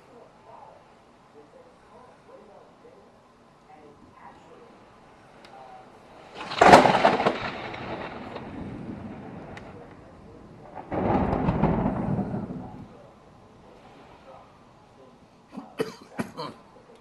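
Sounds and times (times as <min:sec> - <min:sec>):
thunder crack and rumble: 0:06.2 - 0:13.8.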